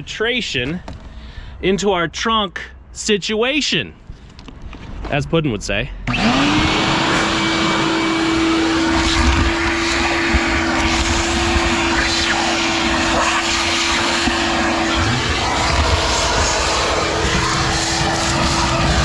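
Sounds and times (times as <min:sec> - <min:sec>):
shop vacuum running: 0:06.0 - 0:19.0.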